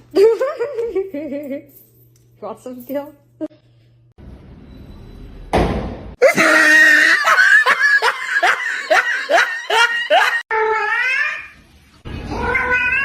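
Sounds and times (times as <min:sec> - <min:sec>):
thump: 0:05.5 - 0:06.1
high-pitched laughter: 0:06.2 - 0:10.4.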